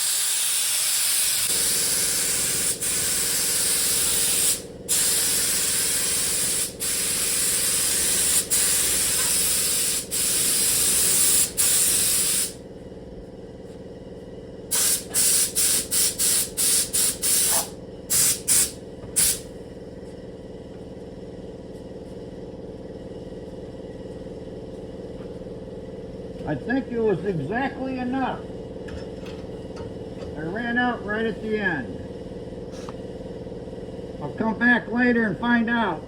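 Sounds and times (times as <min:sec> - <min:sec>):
spray gun hissing: 0:00.0 - 0:12.6, 0:14.7 - 0:19.4.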